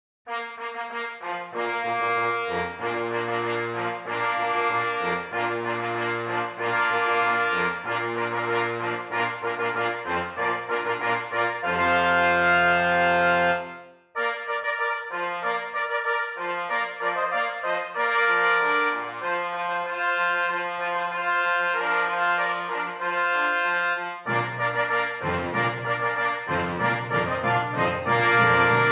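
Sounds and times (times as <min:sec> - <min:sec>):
stately brass music: 0:00.3 - 0:28.9.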